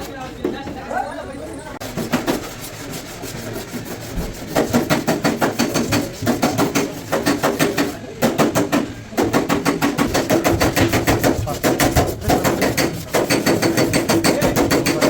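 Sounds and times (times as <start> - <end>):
hammer tapping sheet steel: 4.2 - 15.0.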